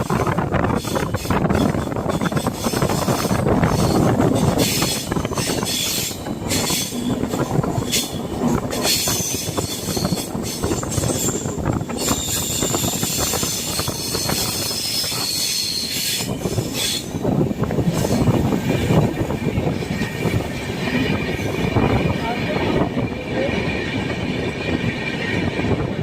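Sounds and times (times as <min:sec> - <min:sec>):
train rumbling on rails: 0:00.0 - 0:26.0
high wheel squeal: 0:00.7 - 0:17.3.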